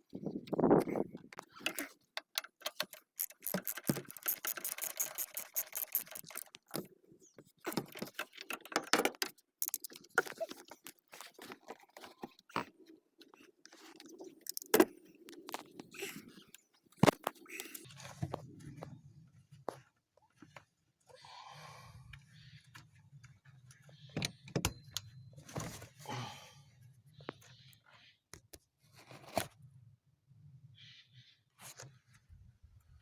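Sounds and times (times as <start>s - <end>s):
rapid clicks: 1.5s - 6.8s, 7.7s - 10.3s, 14.4s - 15.7s
metal hand tools clinking: 2.6s - 6.5s.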